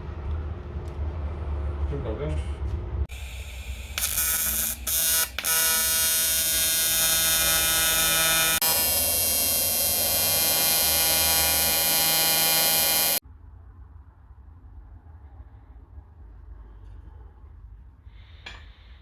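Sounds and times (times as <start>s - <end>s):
loud electrical buzz: 3.1s - 13.2s.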